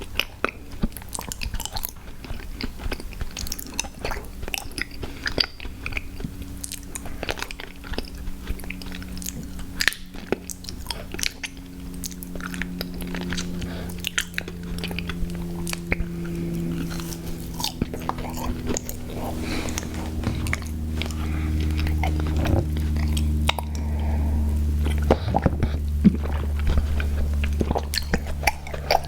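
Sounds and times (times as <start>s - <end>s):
biting and chewing snacks: 0.0s - 29.0s
small crunches: 0.0s - 29.0s.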